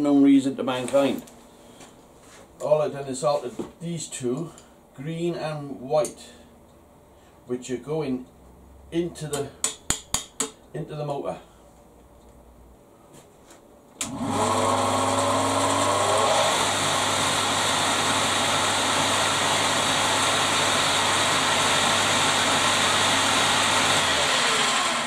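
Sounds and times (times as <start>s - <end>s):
lathe motor whine: 14.0s - 25.0s.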